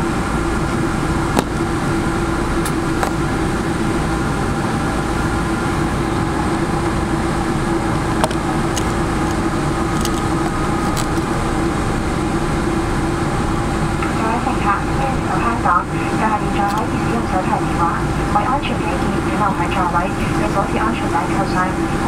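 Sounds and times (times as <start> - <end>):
aircraft cabin engine rumble: 0.0 - 22.0.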